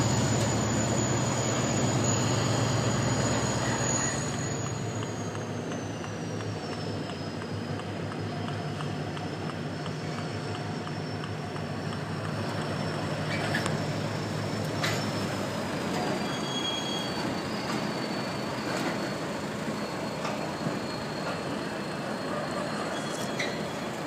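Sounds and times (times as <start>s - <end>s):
train engine drone and rumble: 0.0s - 24.0s.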